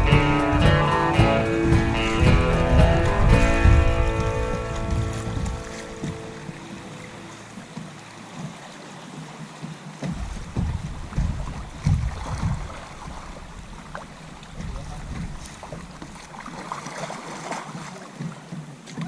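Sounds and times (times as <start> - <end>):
river water washing around kayak: 0.0 - 19.0.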